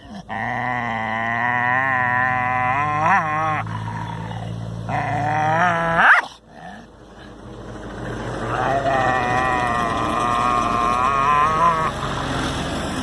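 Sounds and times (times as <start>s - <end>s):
dog howling: 0.3s - 6.8s, 8.4s - 12.0s.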